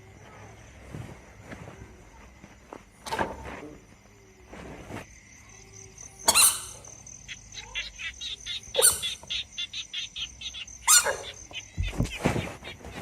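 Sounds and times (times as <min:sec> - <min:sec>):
insect trill: 0:03.8 - 0:13.0.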